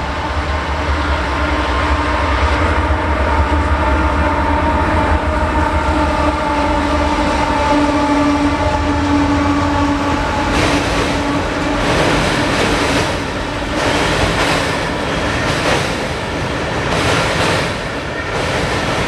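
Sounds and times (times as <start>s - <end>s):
freight train rumbling: 0.0s - 19.0s
rushing wheel noise: 4.7s - 19.0s.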